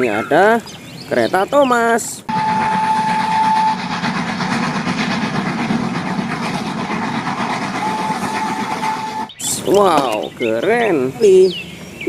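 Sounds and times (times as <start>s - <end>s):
steam locomotive rattling: 1.6s - 12.0s
steady high tone: 2.3s - 4.0s.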